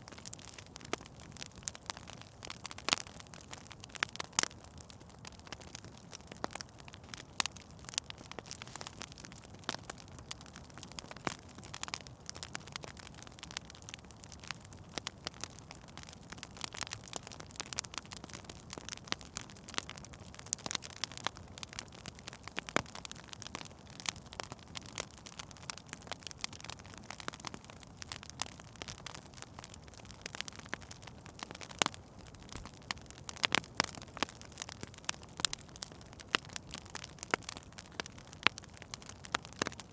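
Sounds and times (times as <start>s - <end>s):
soft steady hiss: 0.0s - 39.9s
wood fire crackling and popping: 0.0s - 39.9s.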